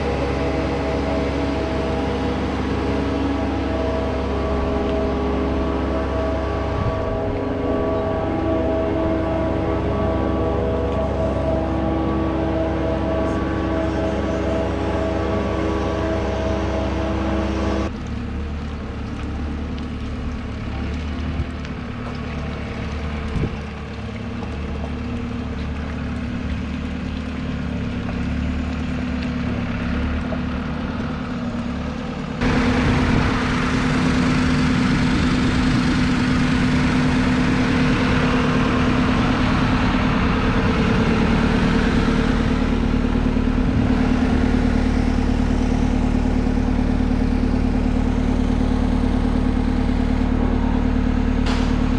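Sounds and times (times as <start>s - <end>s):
engine running: 0.0s - 51.9s.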